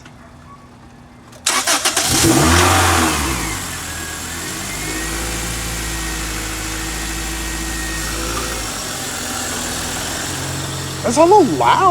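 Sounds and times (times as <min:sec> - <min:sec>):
car engine starting and idling: 0:01.4 - 0:11.9.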